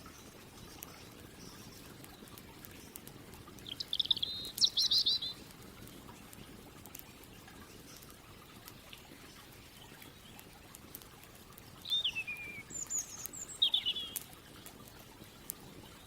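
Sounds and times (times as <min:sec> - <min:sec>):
campfire crackling: 0:00.0 - 0:16.0
songbird chirping: 0:03.7 - 0:05.4, 0:11.8 - 0:14.3.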